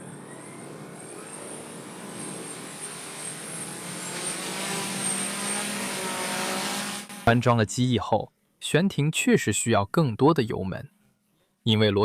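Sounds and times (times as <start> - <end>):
electric rotors whirring with high whine: 0.0 - 7.3.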